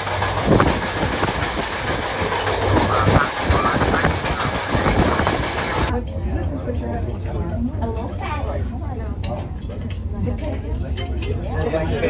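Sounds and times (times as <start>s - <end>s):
wheels clacking over rails: 0.0s - 5.9s
train rumbling on track: 0.0s - 6.0s.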